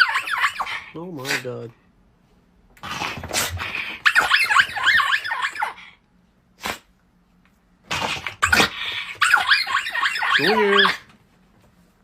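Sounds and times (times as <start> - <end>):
dog whining and yipping: 0.0 - 0.8, 3.9 - 5.8, 8.4 - 11.1.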